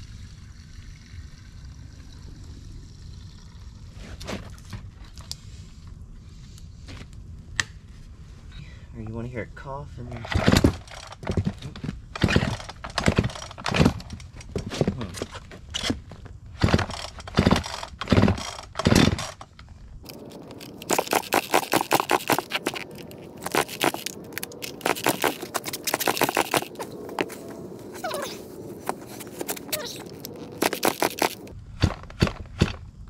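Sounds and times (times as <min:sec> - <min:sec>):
chainsaw starter cord pulls: 0:16.6 - 0:19.5, 0:20.1 - 0:26.8, 0:28.8 - 0:32.8
rapid crackling and scraping clicks: 0:16.6 - 0:27.4, 0:28.0 - 0:32.8.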